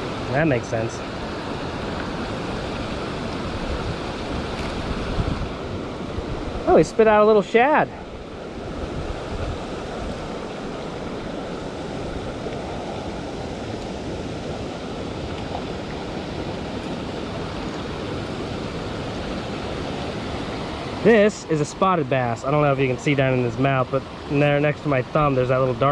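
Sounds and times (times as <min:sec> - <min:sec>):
water rushing over rocks: 0:00.0 - 0:25.9.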